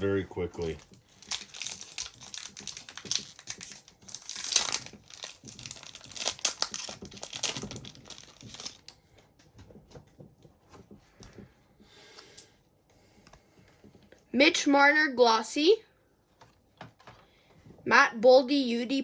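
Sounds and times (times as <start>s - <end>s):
wrapper crinkling and tearing: 0.6s - 8.9s.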